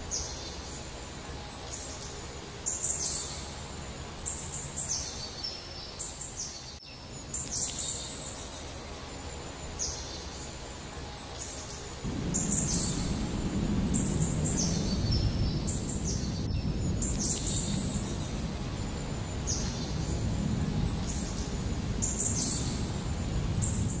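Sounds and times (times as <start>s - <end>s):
birds calling: 11.3s - 24.0s
low outdoor rumble: 12.0s - 24.0s.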